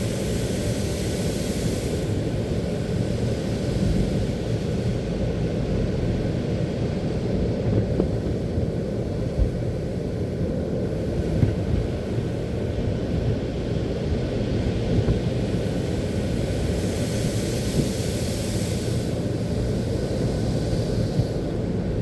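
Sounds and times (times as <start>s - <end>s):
broad hiss: 0.0s - 6.6s, 14.4s - 22.0s.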